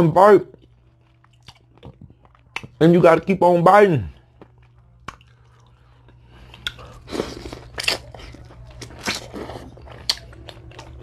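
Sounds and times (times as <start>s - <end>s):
steady low hum: 0.0s - 11.0s
wet mouth smacks: 5.0s - 5.3s
crunchy bites of corn: 6.5s - 11.0s.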